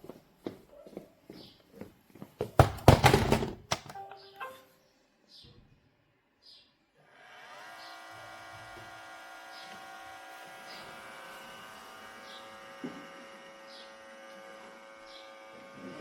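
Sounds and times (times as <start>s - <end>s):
faint high chirps: 3.9s - 5.6s
robot vacuum motor whine: 7.6s - 16.0s.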